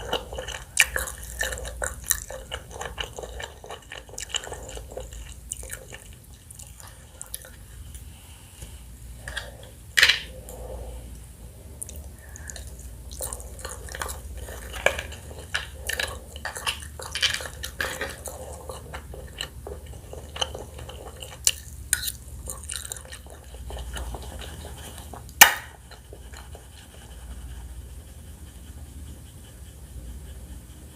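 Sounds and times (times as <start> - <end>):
wet chewing and smacking: 0.0 - 8.1, 11.7 - 27.4.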